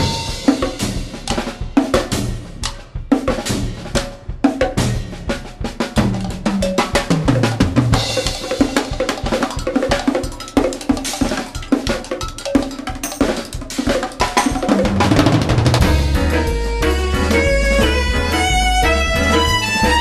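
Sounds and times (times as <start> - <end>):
fast drum kit hits: 0.0 - 20.0
instrumental rock band music: 0.0 - 20.0
bass line: 15.1 - 20.0.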